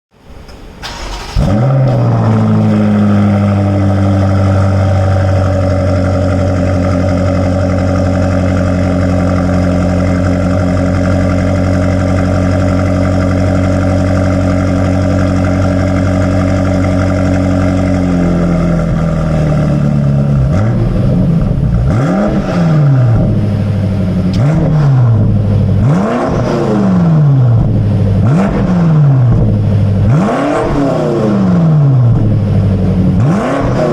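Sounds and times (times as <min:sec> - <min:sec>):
car engine idling: 0:00.4 - 0:26.2, 0:27.0 - 0:30.2
engine revving in throttle blips: 0:00.9 - 0:33.9.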